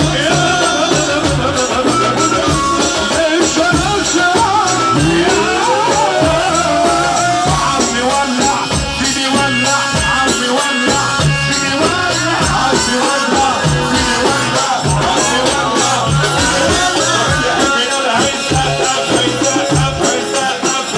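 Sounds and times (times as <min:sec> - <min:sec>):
sliding melody line: 0:00.0 - 0:08.6, 0:09.2 - 0:20.9
hand drum and percussion beat: 0:00.0 - 0:20.9.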